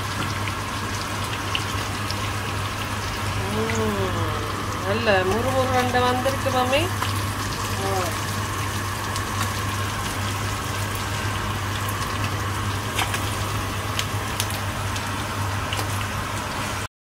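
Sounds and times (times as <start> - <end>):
food sizzling in hot oil: 0.0 - 16.9
low hum: 2.8 - 9.2
oil spattering crackles: 4.6 - 16.2.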